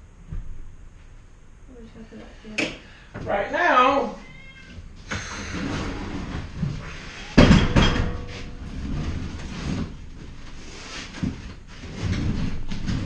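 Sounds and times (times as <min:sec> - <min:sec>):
workshop handling clatter: 0:05.6 - 0:13.0
loud ringing knock: 0:07.4 - 0:08.5.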